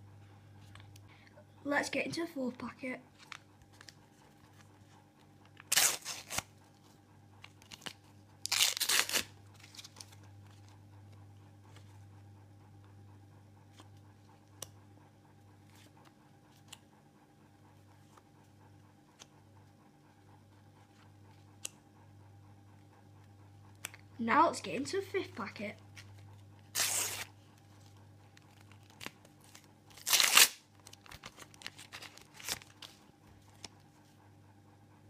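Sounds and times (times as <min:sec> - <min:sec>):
wrapper tearing and crinkling: 0:05.6 - 0:06.5, 0:07.6 - 0:10.2, 0:26.7 - 0:27.3, 0:28.5 - 0:33.0.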